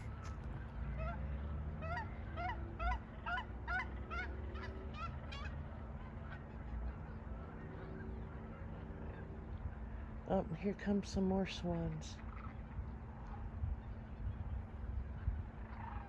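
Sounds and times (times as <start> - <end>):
steady low rumble: 0.0 - 16.0
waterfowl honking: 0.8 - 9.6, 15.0 - 16.0.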